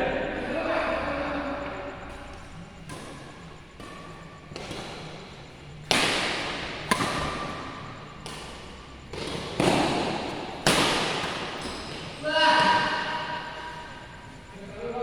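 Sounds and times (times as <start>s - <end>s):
rackets hitting shuttlecock: 2.0s - 13.7s.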